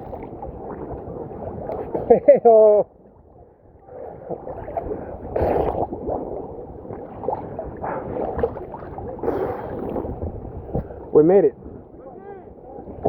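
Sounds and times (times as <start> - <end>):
muffled seawater gurgling: 0.0 - 13.0
water splashes: 0.0 - 13.0.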